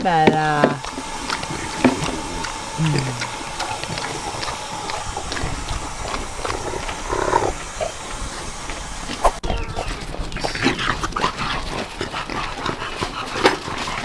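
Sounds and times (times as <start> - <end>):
scattered clicks: 0.0 - 9.6.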